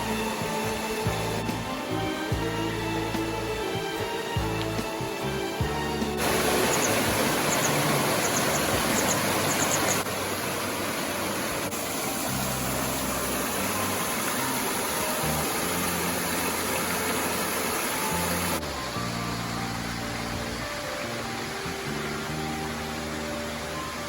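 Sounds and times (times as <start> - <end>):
faint low music notes: 0.0 - 24.0
waterfall roar: 6.2 - 24.0.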